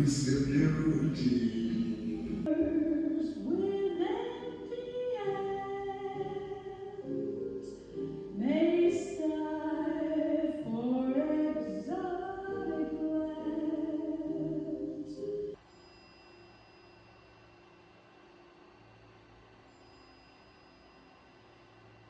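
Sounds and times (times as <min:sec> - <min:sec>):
musical backing: 0:00.0 - 0:15.6
woman singing: 0:02.4 - 0:15.4.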